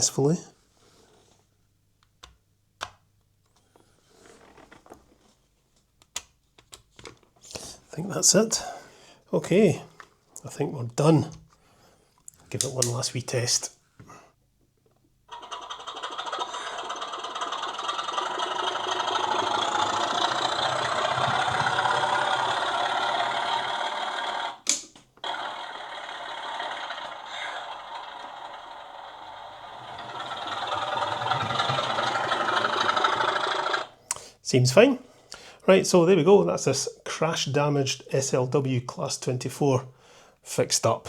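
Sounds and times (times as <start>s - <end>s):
simulated diesel engine sound: 15.3s - 24.6s, 25.2s - 33.9s
model train motor whirring: 15.3s - 34.0s.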